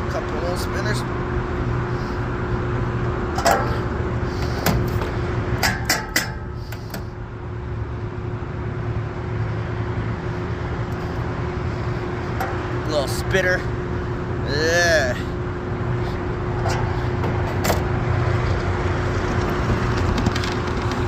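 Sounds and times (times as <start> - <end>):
low machine hum: 0.0 - 21.0
sharp metallic clicks and knocks: 4.5 - 7.1.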